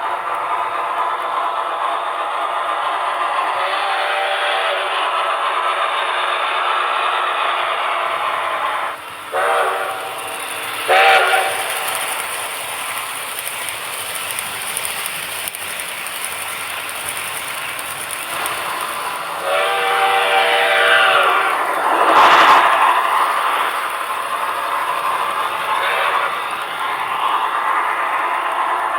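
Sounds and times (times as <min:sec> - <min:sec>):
model train steam whistle: 0:00.0 - 0:15.6, 0:16.7 - 0:27.6
model train running noise: 0:00.0 - 0:28.9.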